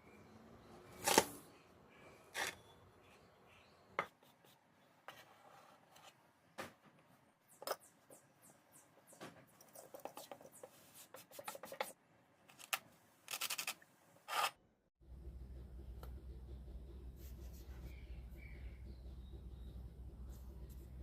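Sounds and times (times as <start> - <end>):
steady low hum: 15.0 - 21.0.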